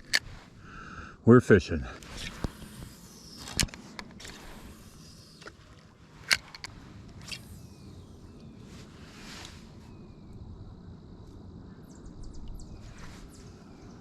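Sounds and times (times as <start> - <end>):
knocks and clicks of gear: 2.0 - 4.6, 5.4 - 7.4.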